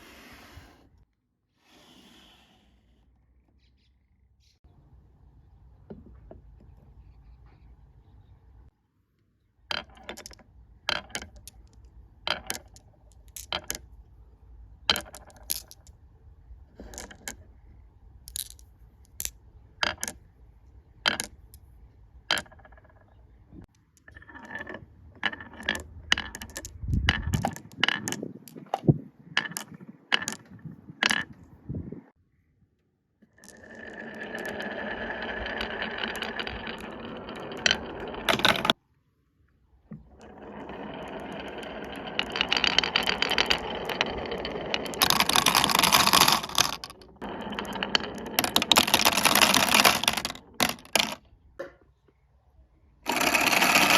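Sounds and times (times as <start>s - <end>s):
marbles clicking on wood: 9.7s - 14.0s, 14.8s - 16.0s, 16.8s - 20.2s, 21.0s - 21.7s, 22.3s - 31.5s, 33.2s - 38.8s, 40.0s - 51.2s, 53.1s - 53.9s
whirring rattle of marbles: 33.4s - 38.8s, 40.2s - 51.2s, 53.1s - 53.9s.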